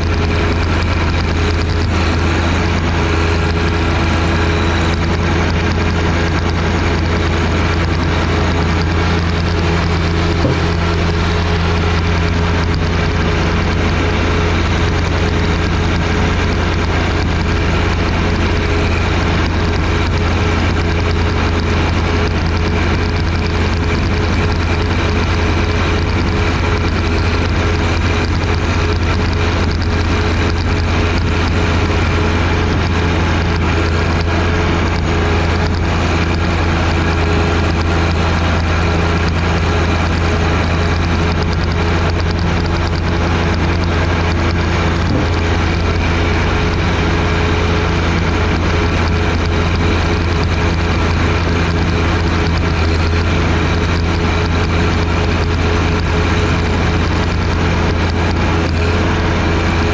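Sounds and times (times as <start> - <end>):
snowblower working: 0.0 - 59.9
tractor diesel engine running: 0.0 - 59.9.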